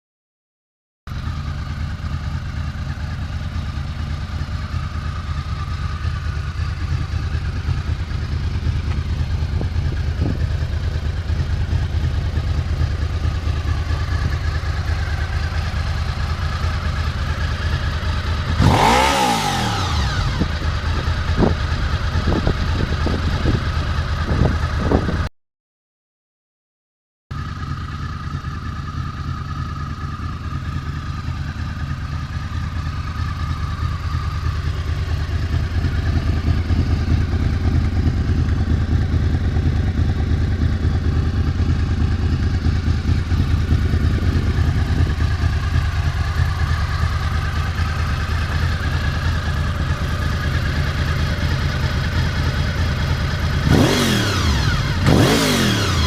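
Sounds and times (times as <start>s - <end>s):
motorcycle engine idling: 1.1s - 25.3s, 27.3s - 56.0s
engine throttle blips: 6.5s - 23.6s, 42.6s - 56.0s.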